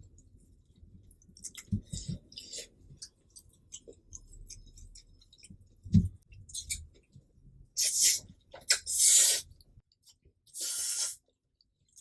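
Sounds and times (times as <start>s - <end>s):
chewing noodles: 0.7s - 5.8s.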